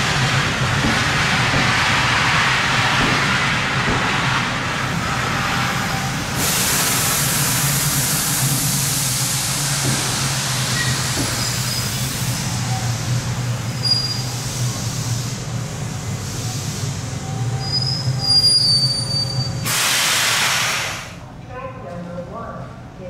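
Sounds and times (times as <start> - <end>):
loud hiss: 0.0 - 17.1, 19.5 - 21.2
train hum and rumble: 0.0 - 23.0.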